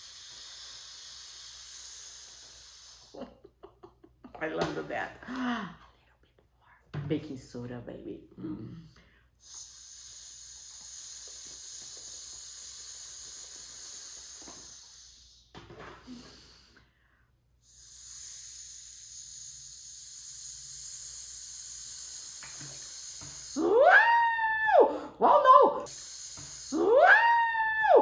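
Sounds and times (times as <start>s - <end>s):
person taking a breath: 0.0s - 3.2s, 8.9s - 23.6s
person making shhh sound: 0.0s - 3.3s, 9.4s - 16.9s, 17.6s - 24.1s, 25.8s - 28.0s.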